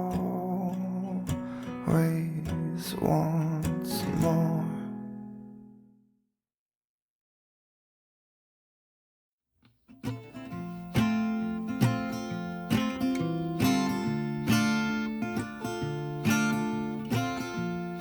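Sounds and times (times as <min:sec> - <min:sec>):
acoustic guitar strumming: 0:00.0 - 0:05.9, 0:09.9 - 0:18.0.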